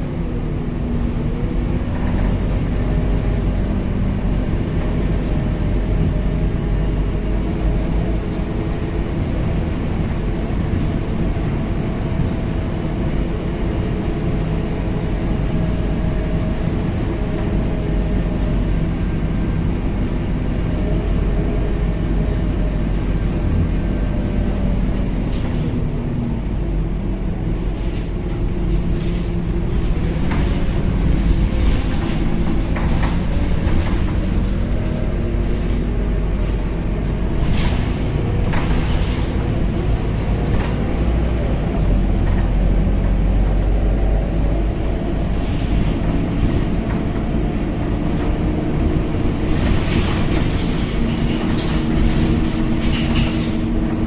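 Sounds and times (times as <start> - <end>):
bus body knocks and rattles: 0.0 - 54.0
bus engine and road rumble: 0.0 - 54.0.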